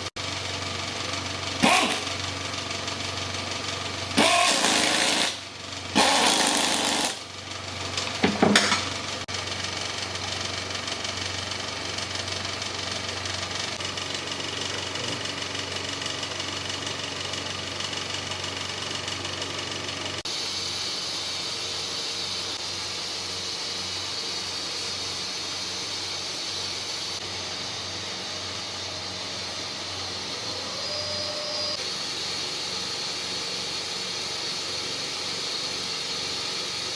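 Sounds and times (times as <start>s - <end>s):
motorcycle engine running: 0.0s - 36.9s
hiss: 4.2s - 5.4s, 6.0s - 7.2s, 20.3s - 36.9s.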